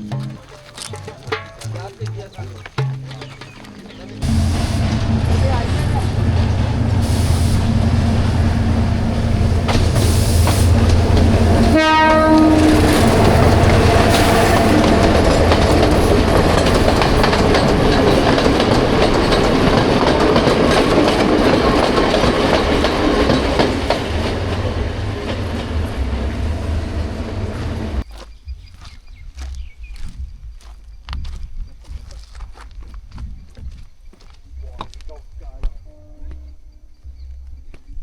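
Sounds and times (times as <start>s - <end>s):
train wheels clattering on rails: 0.3s - 28.1s
train horn: 4.2s - 17.8s.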